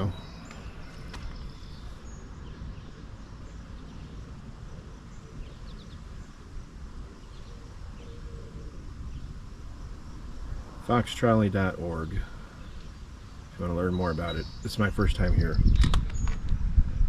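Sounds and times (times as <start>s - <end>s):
faint bird chirps: 0.0s - 16.4s
low rumble and hiss: 0.0s - 17.0s.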